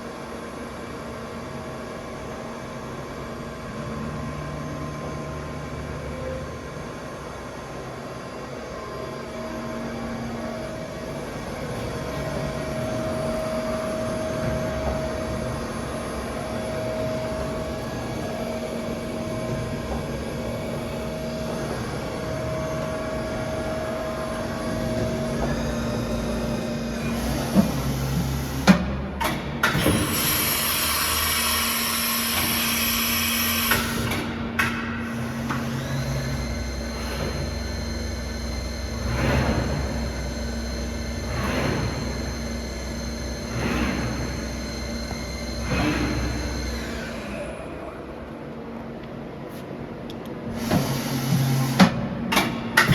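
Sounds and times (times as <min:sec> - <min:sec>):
constant machine whine: 0:00.0 - 0:52.9
machine mechanical hum: 0:00.0 - 0:52.9
motor hum: 0:35.2 - 0:47.9.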